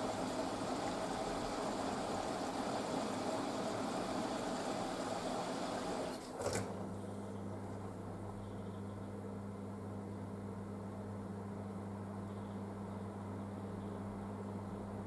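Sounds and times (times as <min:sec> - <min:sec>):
washing machine rushing: 0:00.0 - 0:07.9
washing machine low hum: 0:00.0 - 0:15.0.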